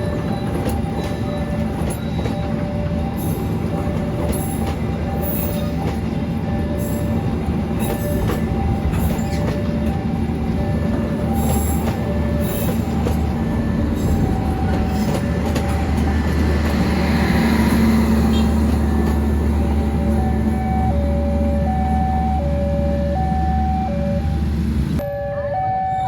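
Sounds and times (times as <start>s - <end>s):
wheels clattering over rail joints: 0.0s - 20.6s
train rumbling past: 0.0s - 26.0s.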